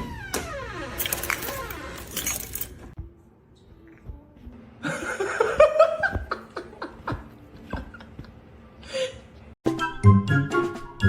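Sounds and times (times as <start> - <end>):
person laughing: 4.8 - 9.2.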